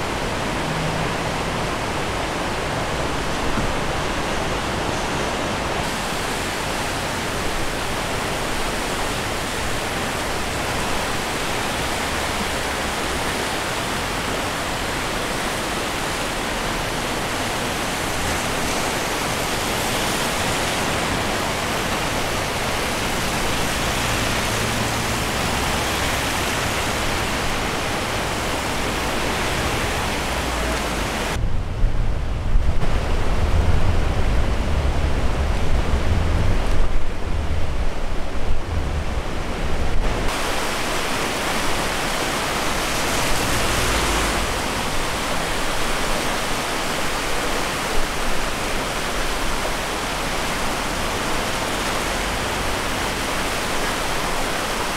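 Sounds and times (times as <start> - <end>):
river rushing: 0.0 - 54.9
wind buffeting microphone: 17.2 - 54.3.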